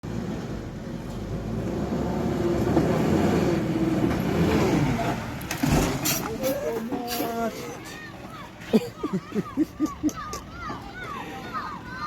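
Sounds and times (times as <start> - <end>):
truck engine revving: 0.1 - 6.5.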